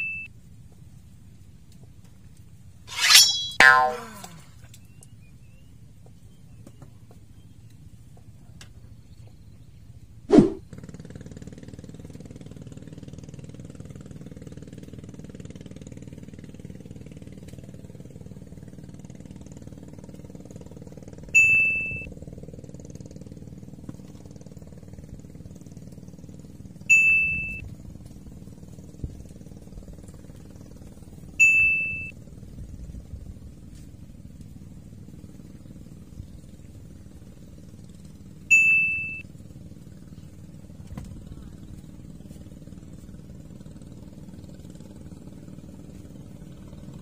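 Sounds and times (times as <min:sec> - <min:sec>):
bright ding chimes: 0:00.0 - 0:00.3, 0:21.4 - 0:22.0, 0:26.9 - 0:27.6, 0:38.5 - 0:39.2
low motor hum: 0:18.7 - 0:47.0.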